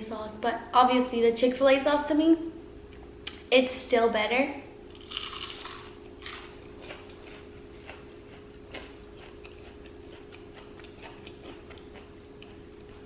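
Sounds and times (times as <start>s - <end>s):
steady low hum: 0.0s - 13.0s
chewing food crunches: 4.9s - 13.0s.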